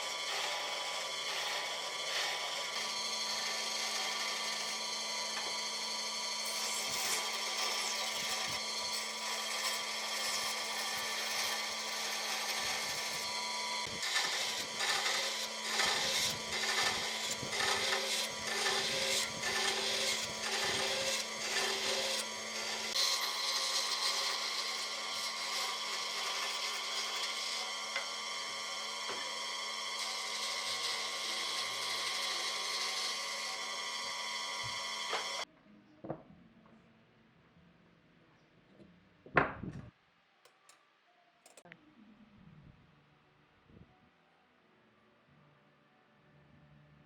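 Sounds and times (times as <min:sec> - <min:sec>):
electric power tool on wood: 0:00.0 - 0:35.5.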